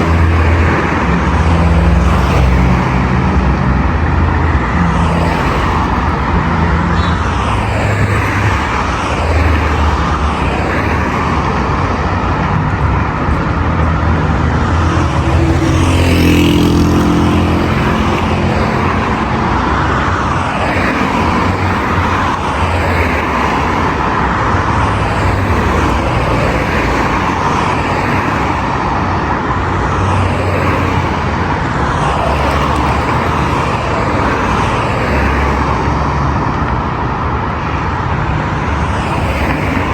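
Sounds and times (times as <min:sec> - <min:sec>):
heavy road traffic rumble: 0:00.0 - 0:39.9
loud vehicle passing: 0:00.0 - 0:39.9.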